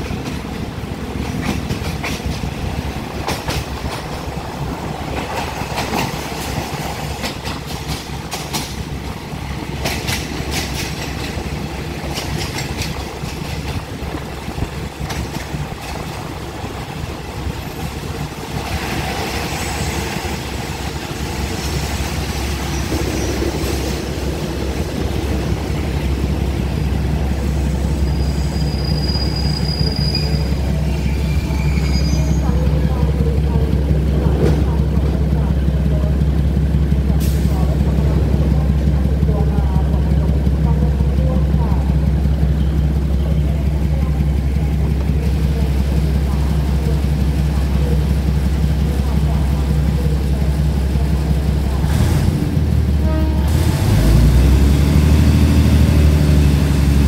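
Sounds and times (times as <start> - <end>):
train wheels clicking over rail joints: 0.0 - 28.0
brief high squeal: 28.1 - 32.4.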